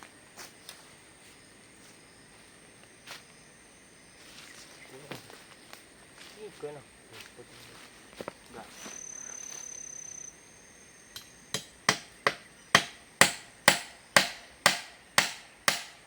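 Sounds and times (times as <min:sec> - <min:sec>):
faint high whine: 0:08.5 - 0:11.7
hand tool striking: 0:11.2 - 0:16.0.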